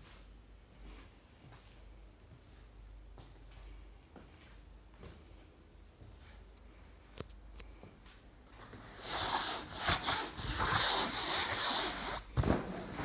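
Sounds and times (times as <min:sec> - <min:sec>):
rubbing and scuffing on a surface: 0:08.1 - 0:13.0.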